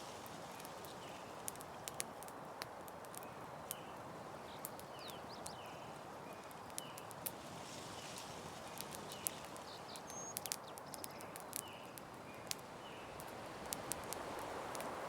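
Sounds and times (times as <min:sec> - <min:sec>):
campfire crackling and popping: 0:00.0 - 0:15.0
bird chirps: 0:03.8 - 0:07.1, 0:08.7 - 0:13.2.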